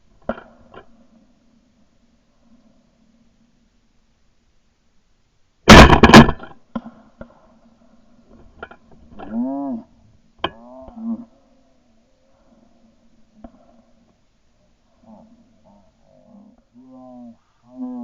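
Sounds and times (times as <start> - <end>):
shotgun firing: 5.7 - 6.5.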